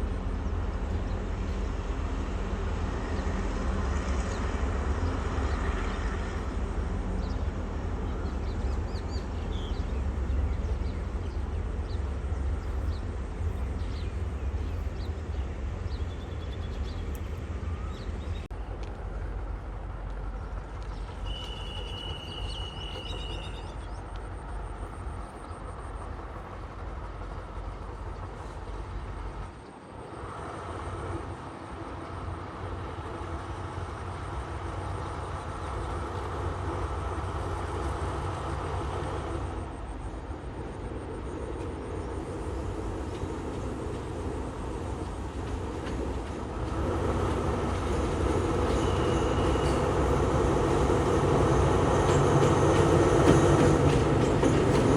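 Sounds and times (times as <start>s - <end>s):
diesel train engine rumble: 0.0s - 54.9s.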